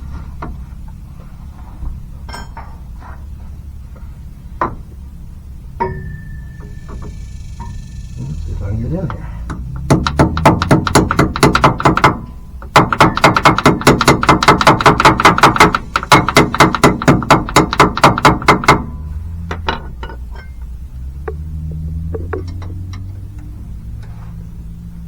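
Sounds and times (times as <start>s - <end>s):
metal knocks: 5.8s - 23.2s.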